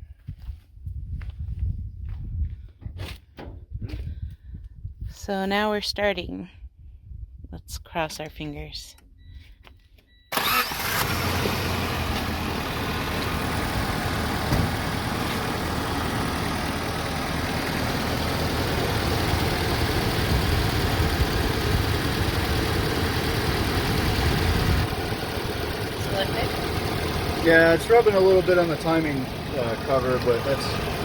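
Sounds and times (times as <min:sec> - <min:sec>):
car engine idling: 0:10.3 - 0:31.0
car engine starting: 0:10.3 - 0:31.0.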